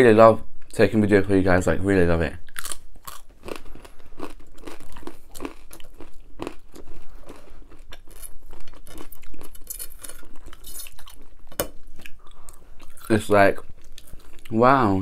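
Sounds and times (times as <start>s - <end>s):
crunchy chewing of pizza crust: 2.5s - 14.6s.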